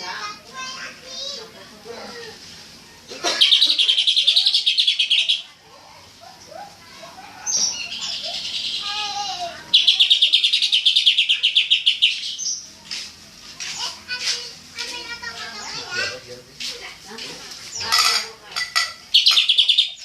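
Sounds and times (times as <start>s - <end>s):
bird warbling: 3.2s - 6.6s, 7.2s - 12.6s, 17.7s - 20.0s
bird singing rapid notes: 3.4s - 5.5s, 9.7s - 12.8s, 19.1s - 20.0s.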